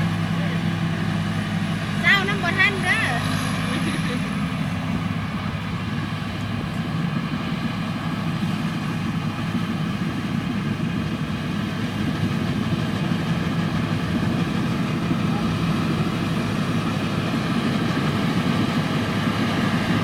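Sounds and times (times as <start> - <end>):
engine drone: 0.0 - 20.0
machinery noise: 0.0 - 20.0.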